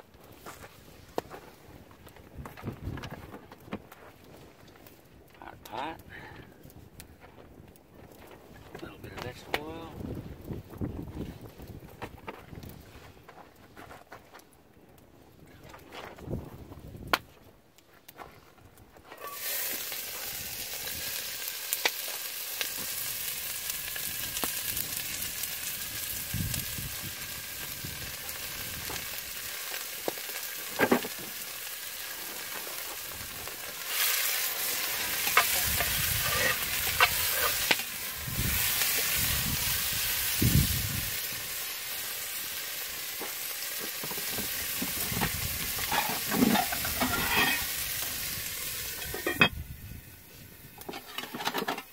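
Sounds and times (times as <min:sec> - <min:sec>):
food sizzling in hot oil: 0:19.2 - 0:51.3.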